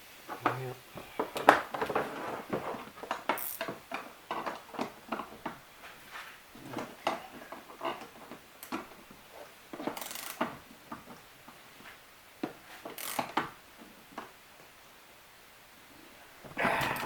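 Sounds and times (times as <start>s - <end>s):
ratchet wrench clicking: 3.4s - 3.6s, 10.0s - 10.4s, 13.0s - 13.2s.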